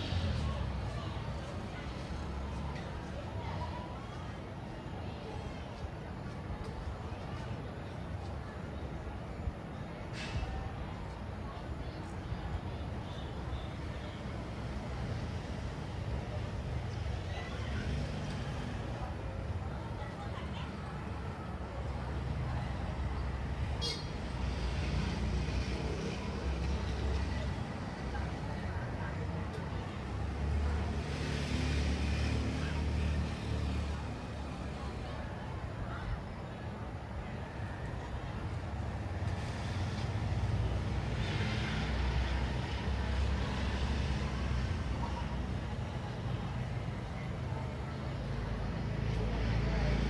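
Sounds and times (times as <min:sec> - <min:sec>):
passing vehicles rumbling: 0:00.0 - 0:03.5, 0:21.6 - 0:50.0.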